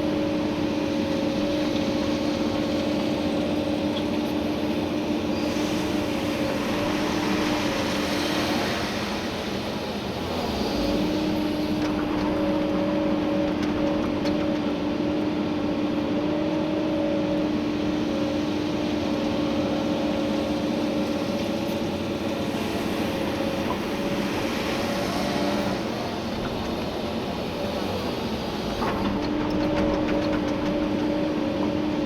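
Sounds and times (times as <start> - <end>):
excavator engine and hydraulics: 0.0 - 32.0.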